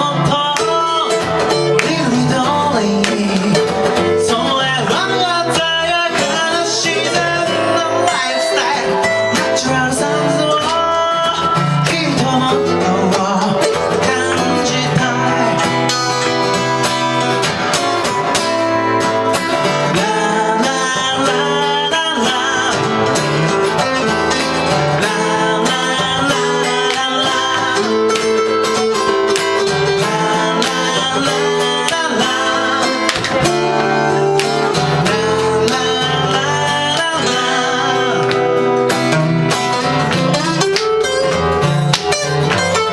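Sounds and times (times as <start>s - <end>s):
person singing: 0.0s - 16.9s, 18.8s - 42.9s
acoustic guitar strumming: 0.0s - 42.9s.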